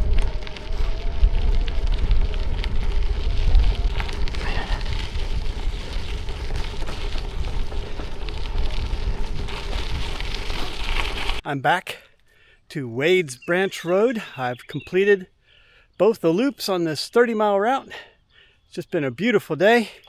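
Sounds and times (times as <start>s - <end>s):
bike tyres crunching on gravel: 0.0s - 11.4s
wind rumbling on microphone: 0.0s - 11.4s.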